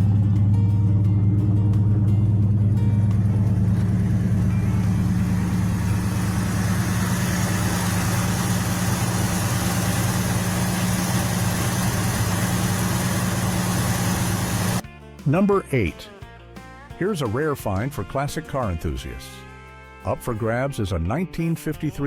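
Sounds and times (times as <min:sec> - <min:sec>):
engine droning steadily: 0:00.0 - 0:14.8
rushing noise: 0:01.4 - 0:14.8.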